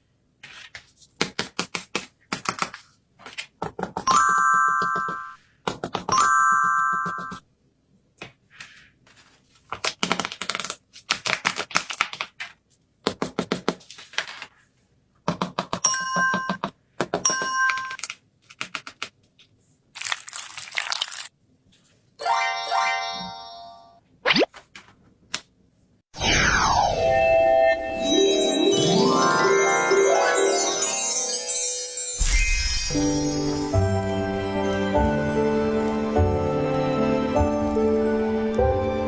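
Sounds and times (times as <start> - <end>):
paper crinkling and rustling: 0.4 - 1.1, 8.6 - 12.8, 13.8 - 14.8, 19.3 - 22.0
bell-like chimes: 22.2 - 24.0, 27.2 - 35.6.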